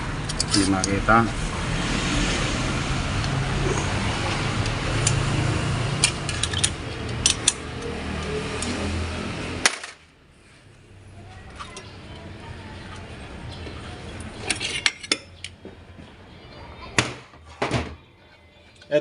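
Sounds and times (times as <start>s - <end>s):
metallic clicks of parts: 0.2s - 1.0s, 6.0s - 8.8s.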